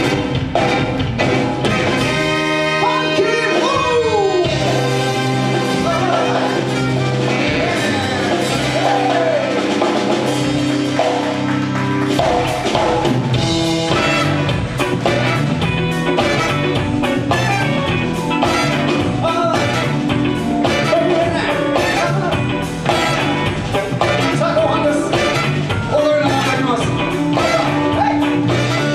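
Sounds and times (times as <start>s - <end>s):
drums beating: 0.0s - 28.9s
live rock band playing: 0.0s - 28.9s
person singing: 2.8s - 9.7s.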